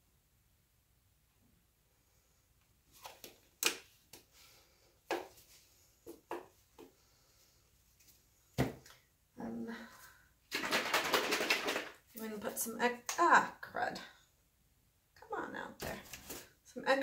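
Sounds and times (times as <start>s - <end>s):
paint bottles clicking and knocking: 10.5s - 12.0s.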